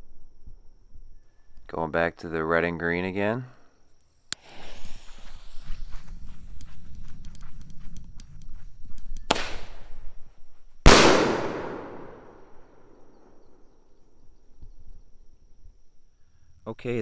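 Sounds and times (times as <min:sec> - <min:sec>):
firework bangs with echo: 0:09.3 - 0:09.7, 0:10.9 - 0:12.5.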